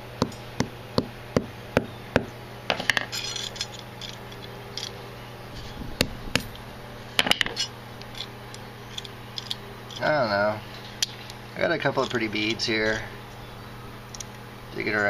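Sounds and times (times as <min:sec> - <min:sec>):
glass fragments clinking: 0:02.9 - 0:04.9.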